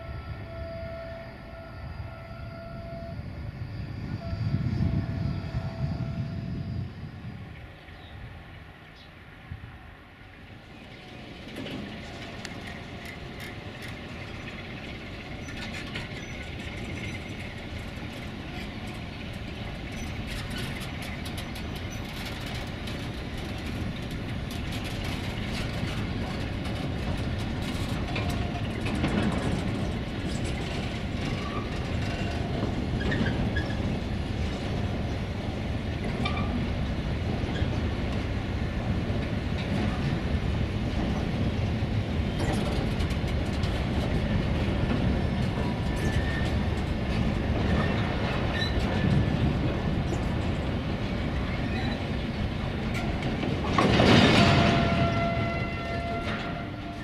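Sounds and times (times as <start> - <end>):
train wheels rumbling on rails: 0.0 - 57.0
clicks and clatters of wheels: 11.4 - 33.9, 42.3 - 50.6, 52.9 - 57.0.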